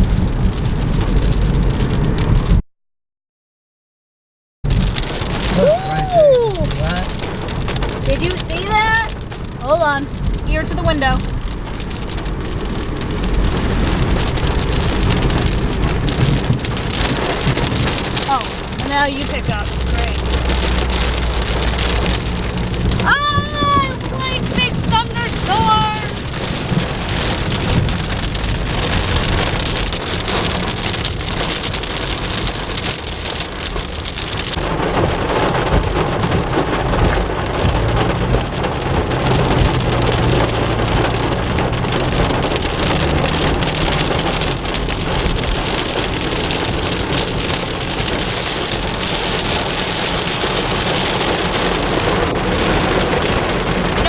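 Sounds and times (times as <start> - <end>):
car rumbling: 0.0 - 2.6, 4.7 - 54.0
heavy rain on car roof: 0.0 - 2.6, 4.6 - 54.0.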